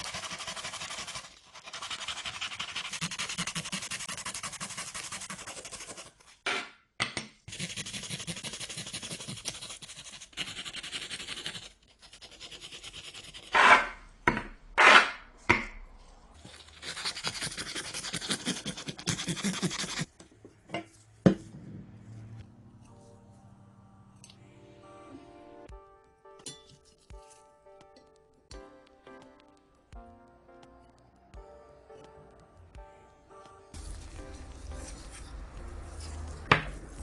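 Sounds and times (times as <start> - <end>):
hand tool scraping hard surface: 13.4 - 14.0.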